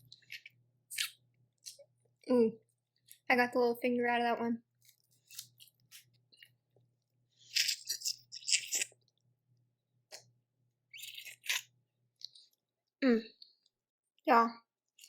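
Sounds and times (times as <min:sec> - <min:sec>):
crunching and chewing crawfish: 0:00.0 - 0:01.9, 0:04.8 - 0:06.6, 0:07.3 - 0:09.3, 0:10.9 - 0:12.6.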